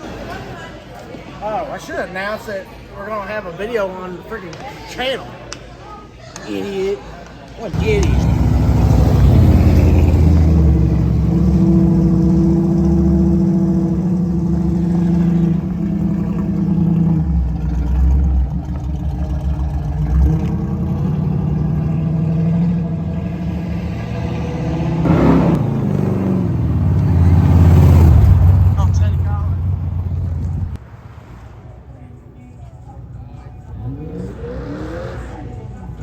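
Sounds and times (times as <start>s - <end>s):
car engine running: 7.8s - 30.8s.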